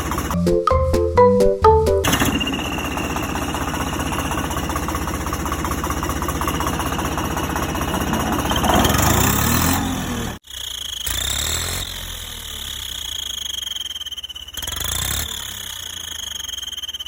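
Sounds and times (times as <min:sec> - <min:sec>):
vehicle engine chugging: 0:02.0 - 0:10.4.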